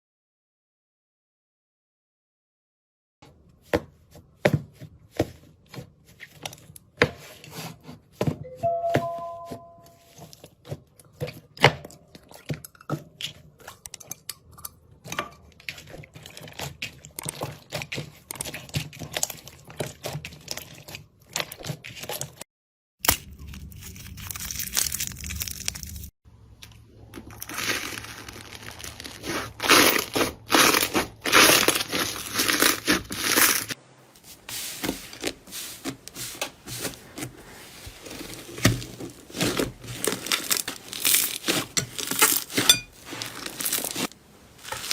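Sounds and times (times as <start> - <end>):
slime crackling and popping: 27.3 - 33.8, 38.6 - 44.9.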